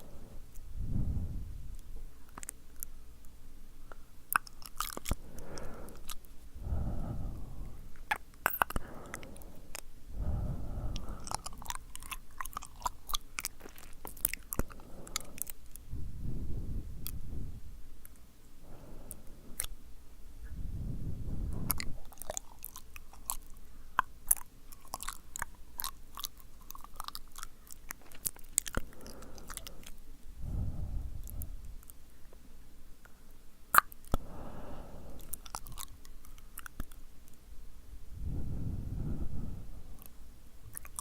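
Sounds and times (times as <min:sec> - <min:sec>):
soft breathy puffs: 0:00.0 - 0:03.1, 0:04.9 - 0:23.9, 0:27.5 - 0:32.4, 0:34.1 - 0:36.6, 0:37.9 - 0:40.4
wet tongue and lip clicks: 0:01.7 - 0:18.3, 0:19.0 - 0:19.8, 0:21.4 - 0:30.0, 0:30.8 - 0:32.0, 0:33.0 - 0:34.3, 0:35.1 - 0:37.4, 0:39.9 - 0:41.0.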